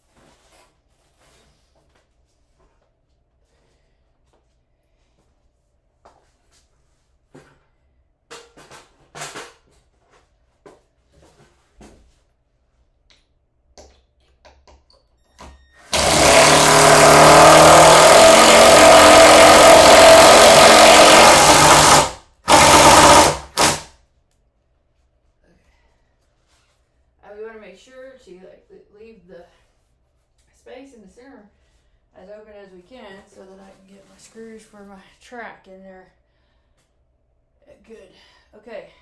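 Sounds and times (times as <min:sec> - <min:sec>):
drill trigger bursts: 0:15.9 - 0:23.9
power drill running: 0:15.9 - 0:23.9.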